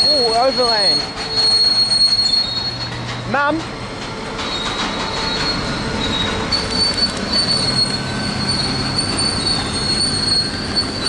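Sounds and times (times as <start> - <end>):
high wheel squeal: 0.0 - 11.0
train wagons rumbling past: 0.0 - 11.0.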